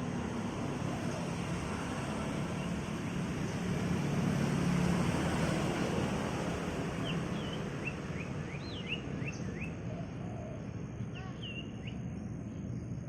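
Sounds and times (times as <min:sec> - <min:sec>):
outdoor background rumble and hiss: 0:00.0 - 0:13.0
small bird chirping: 0:07.0 - 0:09.9, 0:10.6 - 0:13.0.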